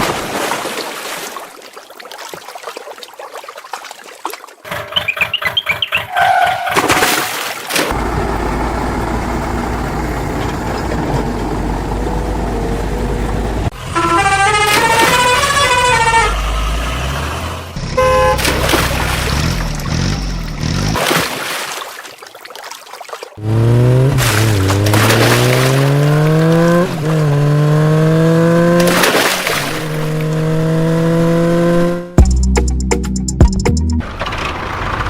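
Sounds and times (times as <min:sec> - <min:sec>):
heavy vehicle engine running: 0:07.9 - 0:14.6
truck horn playing a tune: 0:13.7 - 0:17.0, 0:17.8 - 0:18.5
horn toot: 0:13.8 - 0:17.2, 0:17.8 - 0:18.6.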